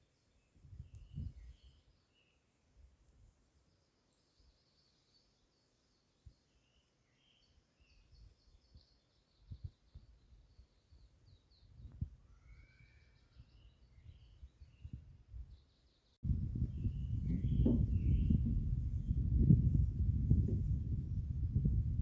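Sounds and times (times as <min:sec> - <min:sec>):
songbirds singing: 0:00.0 - 0:02.6, 0:03.6 - 0:22.0
low thumps and rumble on microphone: 0:00.6 - 0:01.6, 0:16.2 - 0:22.0.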